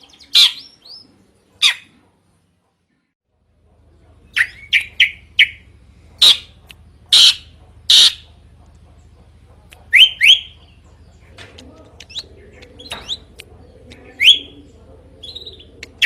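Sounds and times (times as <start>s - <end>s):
harsh rasping bird calls: 0.0s - 2.0s, 4.2s - 16.0s
bird whistling calls: 7.1s - 8.2s, 9.9s - 10.6s, 14.0s - 14.6s.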